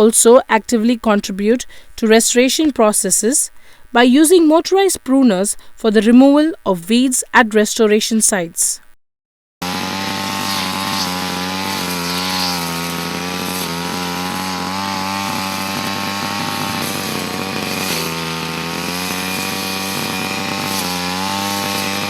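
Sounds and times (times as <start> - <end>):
pruner small engine running: 9.6 - 22.0.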